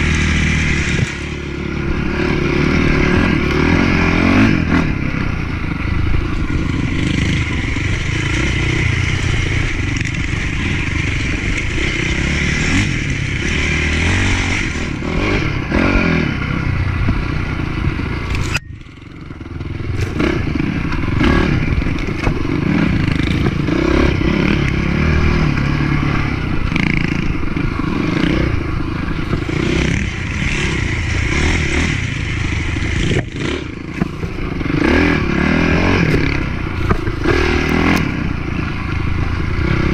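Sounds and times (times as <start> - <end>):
motocross bike engine revving: 0.0 - 39.9
bike clattering and scraping on dirt: 19.8 - 25.9, 29.1 - 38.4.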